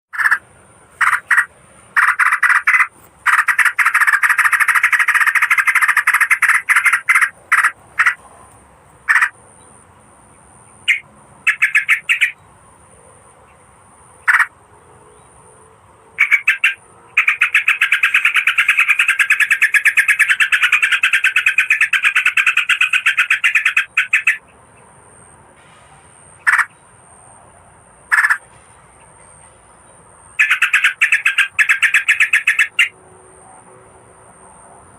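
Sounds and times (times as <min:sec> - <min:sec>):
bulbul chattering calls: 0:00.2 - 0:00.4, 0:01.0 - 0:08.2, 0:09.1 - 0:09.4, 0:10.8 - 0:12.4, 0:14.2 - 0:14.5, 0:16.2 - 0:24.5, 0:26.4 - 0:26.8, 0:28.1 - 0:28.4, 0:30.4 - 0:32.9.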